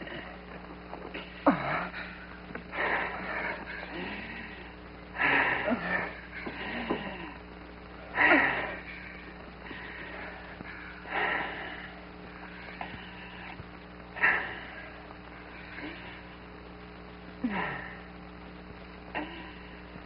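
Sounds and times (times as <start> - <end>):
man wheezing breaths: 0.0 - 16.6, 17.4 - 18.4, 19.1 - 20.0
mains hum: 0.0 - 20.0
man groaning: 1.3 - 2.1, 5.2 - 7.4.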